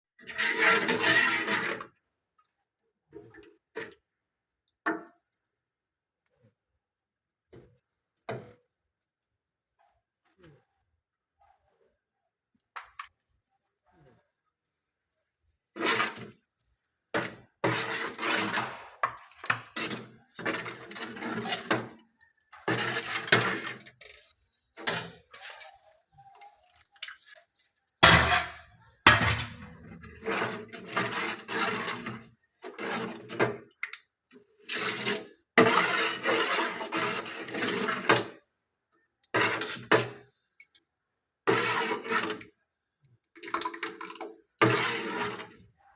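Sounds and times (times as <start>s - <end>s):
dough scraping in a metal pan: 0.2s - 2.0s, 15.7s - 16.5s, 17.2s - 26.0s, 28.0s - 33.7s, 34.6s - 38.4s, 39.4s - 40.2s, 41.5s - 42.6s, 44.6s - 45.9s.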